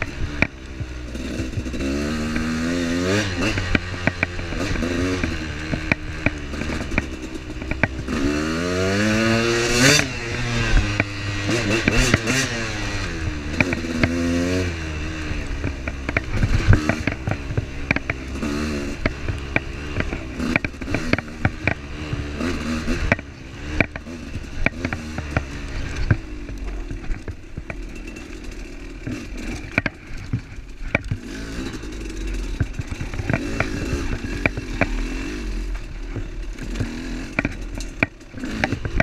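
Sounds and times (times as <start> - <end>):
motorcycle engine revving: 0.0 - 39.0
knocks and clatter: 3.4 - 8.3, 15.5 - 39.0.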